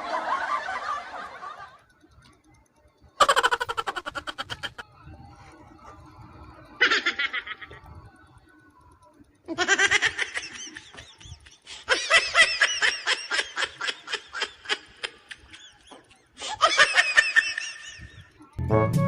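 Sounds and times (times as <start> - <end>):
person laughing: 3.2 - 4.8, 6.8 - 8.0, 9.5 - 18.3.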